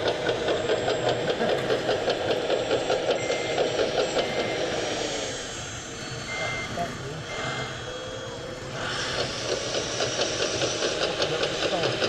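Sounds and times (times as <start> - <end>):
diesel engine chugging: 0.0 - 12.0
reversing beeps: 3.1 - 9.3.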